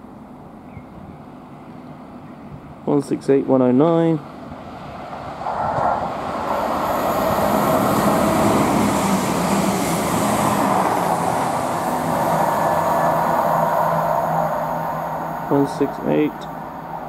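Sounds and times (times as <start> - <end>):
train wheels rushing on rail: 4.2 - 17.0.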